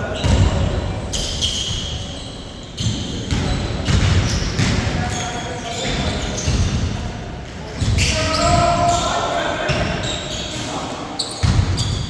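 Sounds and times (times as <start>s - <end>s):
basketball bouncing on court: 0.2s - 2.0s, 2.8s - 5.1s, 5.8s - 7.0s, 11.4s - 12.0s.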